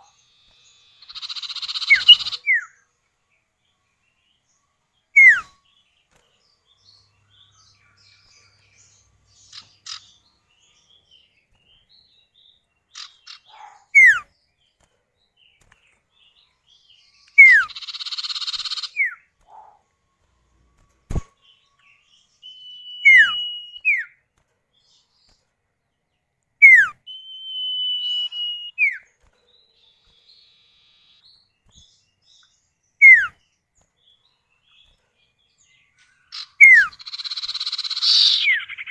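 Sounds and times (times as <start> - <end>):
high drawn-out bird whistles: 0.0 - 2.8, 5.1 - 5.6, 13.3 - 14.3, 17.3 - 19.2, 22.4 - 24.2, 26.6 - 29.0, 33.0 - 33.4, 36.3 - 38.9
bird whistles: 1.0 - 2.8, 5.2 - 5.6, 13.3 - 14.3, 17.4 - 19.2, 22.4 - 24.1, 26.6 - 29.0, 33.0 - 33.4, 36.3 - 38.9.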